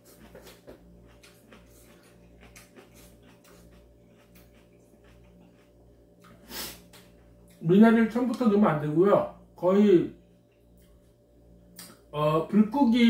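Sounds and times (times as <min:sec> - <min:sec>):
person chewing noodles: 0:00.0 - 0:07.6
steady low hum: 0:00.0 - 0:13.0.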